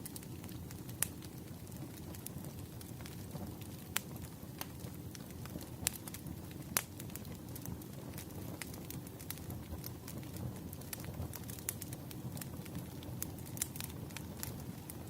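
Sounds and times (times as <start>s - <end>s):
fireplace fire rumble: 0.0s - 15.0s
sharp fire pops: 0.0s - 15.0s.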